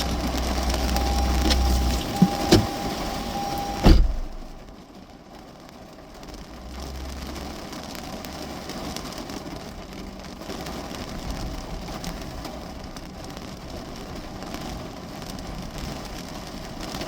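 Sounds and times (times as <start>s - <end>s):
low rumble: 0.0s - 4.8s
rain on a car roof: 0.0s - 17.0s.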